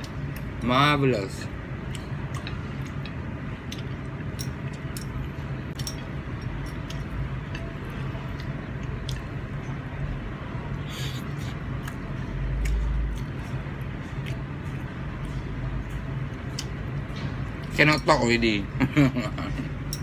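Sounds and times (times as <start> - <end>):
person chewing noodles: 1.8 - 9.9, 10.7 - 17.7.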